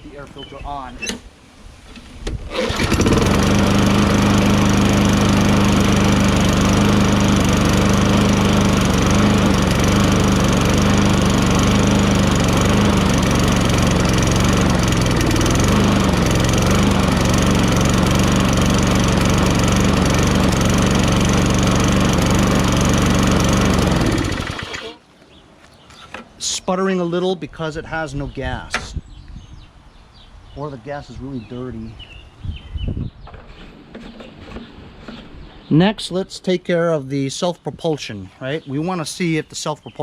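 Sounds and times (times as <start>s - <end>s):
lawn mower engine running: 2.5s - 25.0s.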